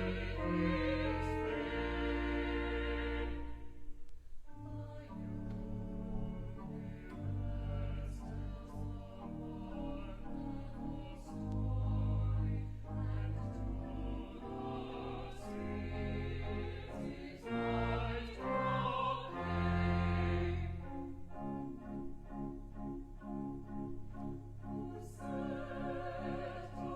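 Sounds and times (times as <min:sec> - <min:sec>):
sustained low accompaniment: 0:00.0 - 0:26.9.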